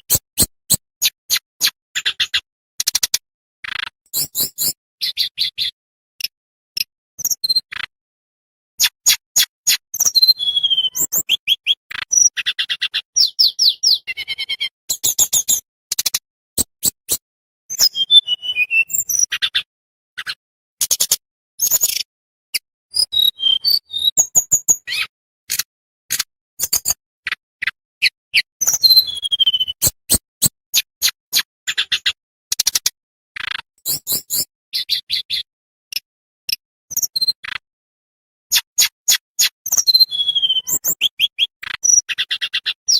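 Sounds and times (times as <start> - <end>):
songbird singing: 10.0 - 15.6, 28.0 - 30.0, 39.8 - 42.9.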